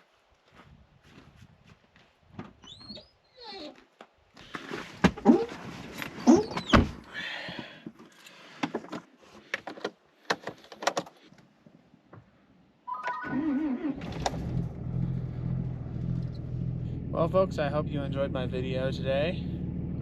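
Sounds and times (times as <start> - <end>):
vehicle engine running: 14.0 - 20.0.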